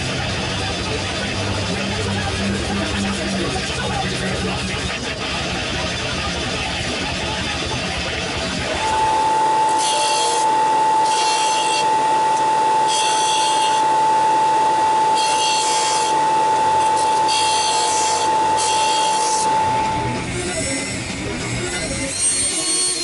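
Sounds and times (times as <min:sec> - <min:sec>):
steady high whine: 0:00.0 - 0:23.0
metal rasping against abrasive: 0:08.9 - 0:23.0.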